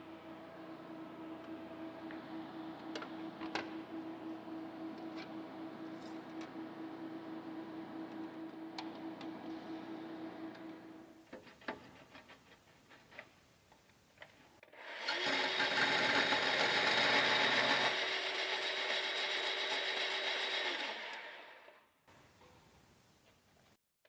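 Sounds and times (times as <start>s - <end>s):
power tool cutting: 14.7s - 21.7s.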